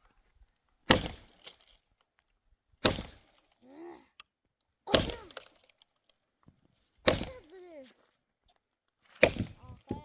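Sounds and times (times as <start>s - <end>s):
wood cracking strikes: 0.8s - 1.8s, 2.8s - 3.5s, 4.8s - 5.8s, 7.0s - 7.6s, 9.1s - 10.0s.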